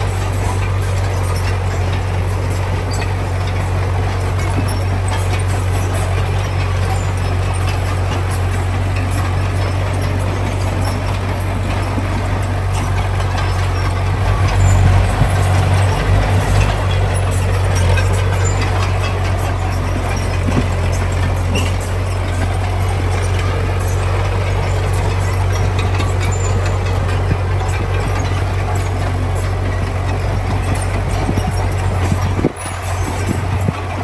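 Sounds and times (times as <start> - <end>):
diesel machinery droning: 0.0 - 34.0.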